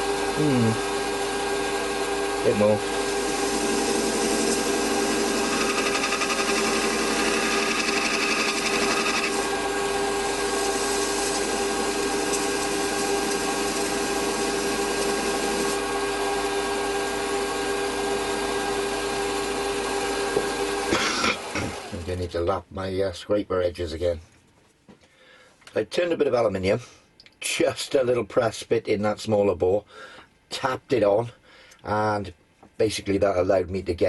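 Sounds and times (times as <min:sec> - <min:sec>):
metal lathe humming: 0:00.0 - 0:21.9.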